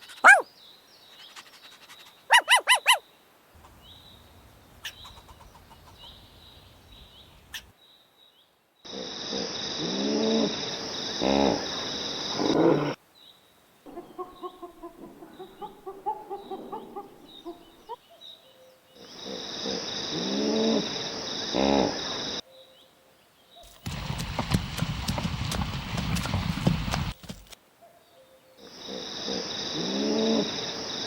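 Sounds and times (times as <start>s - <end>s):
short pitched calls: 0.0s - 0.5s, 1.2s - 3.0s
horse whinnying: 0.2s - 0.4s
hooves clip-clopping: 23.6s - 27.6s.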